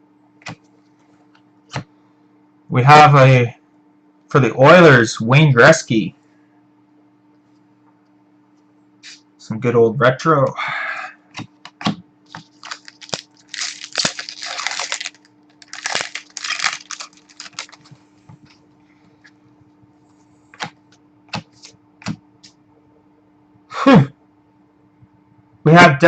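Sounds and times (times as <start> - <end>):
faint electrical hum: 0.0 - 26.0
trading cards rustling and sliding: 12.3 - 18.0, 20.5 - 22.2.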